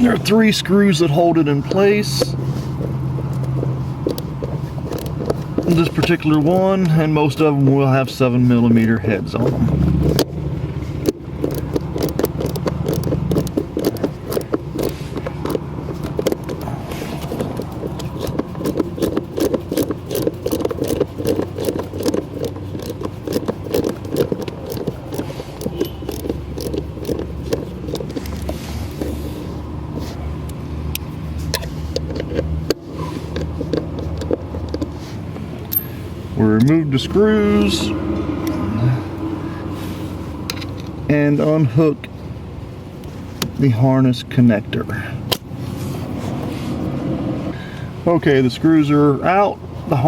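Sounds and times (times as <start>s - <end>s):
tool scraping: 0.0s - 41.9s
steady low hum: 0.0s - 50.0s
ratchet wrench clicking: 3.0s - 7.0s, 11.0s - 29.4s, 35.6s - 36.0s.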